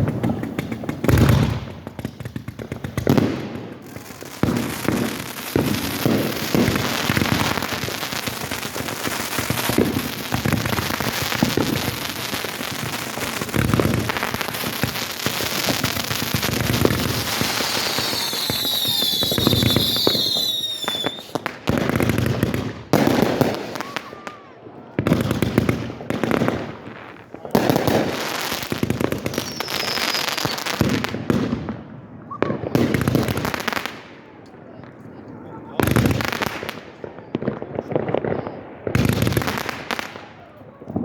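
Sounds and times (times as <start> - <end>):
fireworks booming and crackling: 0.0 - 41.0.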